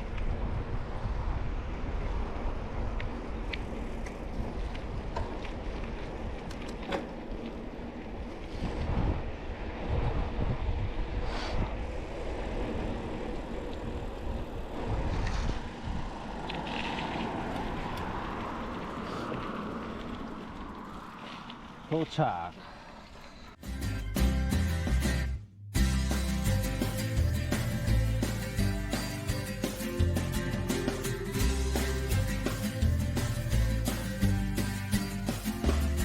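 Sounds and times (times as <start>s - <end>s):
bike tyres rolling on road: 0.0s - 11.2s, 11.8s - 23.6s
wind buffeting microphone: 0.0s - 21.9s
bike clicks and rattles: 3.4s - 8.5s.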